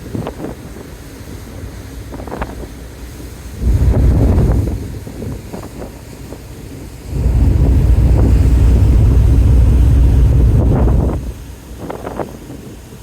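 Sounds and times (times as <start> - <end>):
sea wash: 1.0 - 11.8
wind buffeting microphone: 3.2 - 6.2, 7.0 - 12.4.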